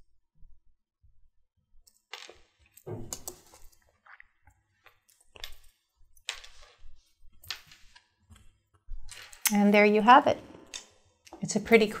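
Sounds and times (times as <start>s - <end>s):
metal parts clicking and clinking: 5.0s - 6.8s, 9.1s - 9.5s.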